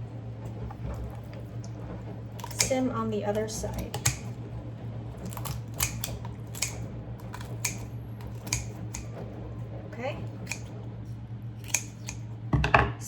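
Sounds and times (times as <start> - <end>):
scissors snipping bones: 2.4 - 2.8, 3.4 - 4.4, 5.2 - 9.1, 10.3 - 10.7, 11.6 - 12.3.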